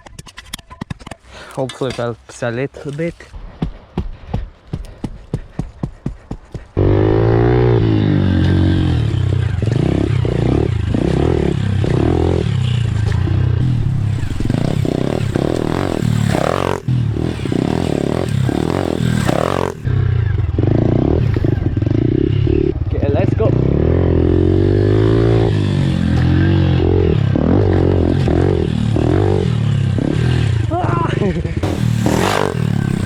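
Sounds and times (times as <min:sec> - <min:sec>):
pit bike engine revving: 0:06.8 - 0:30.7, 0:31.6 - 0:33.0.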